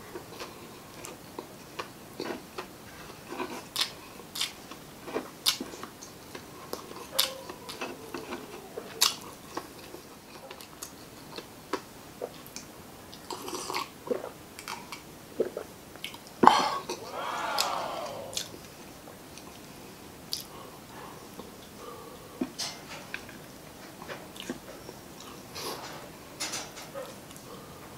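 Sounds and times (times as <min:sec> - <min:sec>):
sipping drink: 0:16.4 - 0:18.6
sharp breath: 0:16.5 - 0:18.5
wet chewing with smacks: 0:24.4 - 0:24.6.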